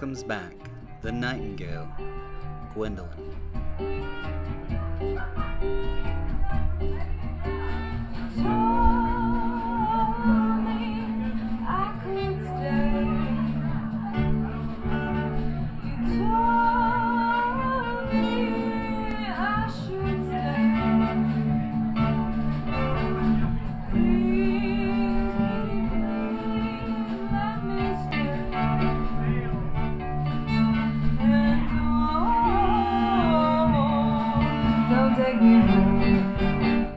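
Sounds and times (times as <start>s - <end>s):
instruments with bass line: 0.0s - 36.9s
woman singing with vibrato: 8.3s - 14.2s, 16.0s - 21.6s, 23.9s - 29.0s, 30.7s - 36.9s.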